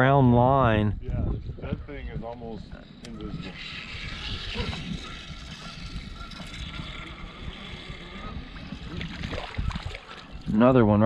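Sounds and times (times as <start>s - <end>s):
wind rumbling on microphone: 0.0s - 11.0s
small boat engine: 1.4s - 11.0s.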